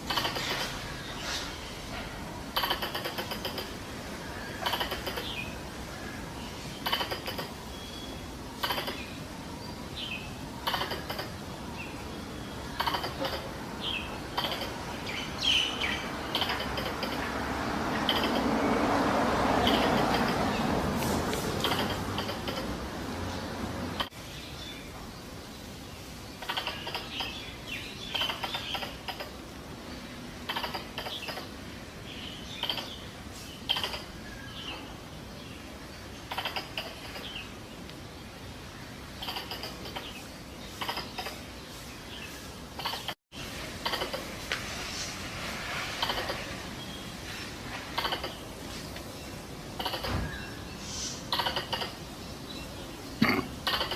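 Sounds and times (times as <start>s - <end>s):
squirrel clicking chatter: 0.0s - 0.8s, 2.5s - 3.8s, 4.6s - 5.4s, 6.8s - 7.6s, 8.6s - 9.1s, 10.6s - 11.4s, 12.8s - 13.6s, 14.3s - 14.9s, 16.3s - 17.3s, 18.0s - 18.5s, 19.6s - 20.4s, 21.6s - 22.8s, 26.4s - 27.4s, 28.1s - 29.4s, 30.5s - 31.5s, 32.6s - 33.0s, 33.7s - 34.2s, 36.3s - 37.3s, 39.2s - 40.2s, 40.8s - 41.4s, 42.8s - 43.2s, 43.8s - 44.3s, 46.0s - 46.4s, 48.0s - 48.4s, 49.8s - 50.1s, 51.3s - 52.0s, 53.6s - 53.9s
steady hiss: 20.1s - 53.9s.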